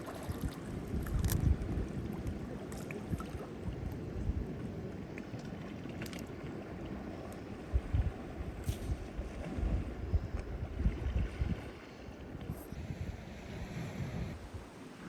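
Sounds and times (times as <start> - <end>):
wind gusting on microphone: 0.3 - 2.6, 7.7 - 14.8.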